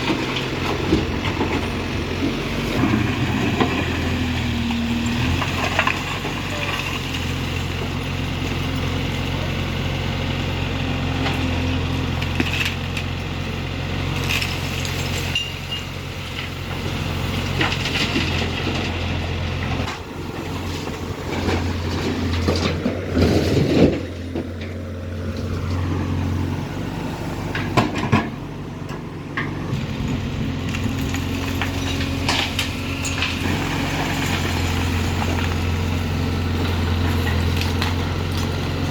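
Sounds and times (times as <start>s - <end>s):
knocks and scrapes of rubble: 0.0s - 8.0s, 11.2s - 13.2s, 14.2s - 26.5s, 27.4s - 38.9s
diesel engine under load: 0.0s - 38.9s
debris crashing: 14.2s - 25.9s, 29.7s - 38.9s.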